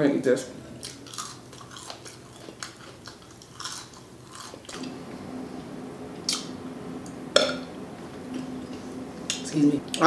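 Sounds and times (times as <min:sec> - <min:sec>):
person chewing crispy food: 0:00.8 - 0:04.8.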